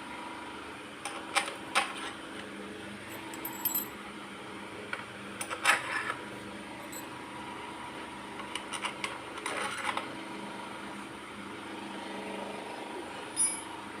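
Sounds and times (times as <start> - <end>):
steady electrical hum: 2.6 - 5.4, 6.1 - 9.2
sharp metal clink: 13.4 - 13.7.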